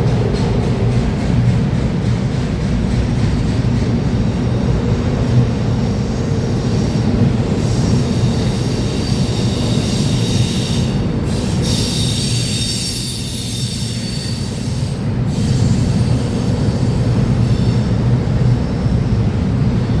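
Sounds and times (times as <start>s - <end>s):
freight train cars rumbling: 0.0s - 20.0s
high-pitched wheel squeal: 6.4s - 17.8s.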